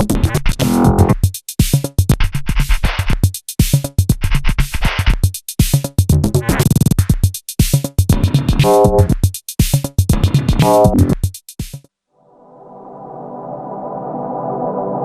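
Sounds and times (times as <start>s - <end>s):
electronic drum machine and synth groove: 0.0s - 11.9s
glitchy stuttering hits: 8.6s - 9.1s.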